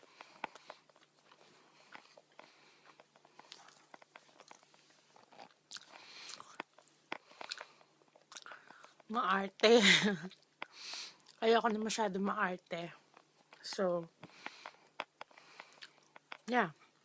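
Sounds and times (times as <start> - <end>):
chewing and crunching pizza: 0.0 - 9.2, 12.6 - 17.0.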